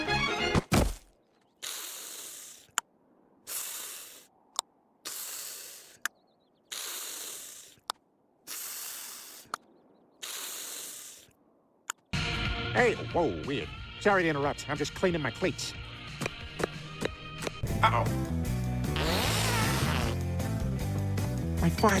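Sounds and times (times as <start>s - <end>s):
short hissing bursts: 1.6s - 2.8s, 3.4s - 4.3s, 5.0s - 6.0s, 6.7s - 9.6s, 10.2s - 11.4s.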